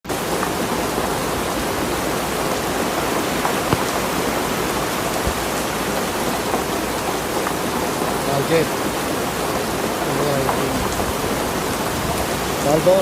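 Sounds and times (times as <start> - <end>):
heavy rain falling: 0.1 - 13.0
single raindrops ticking: 2.4 - 12.6.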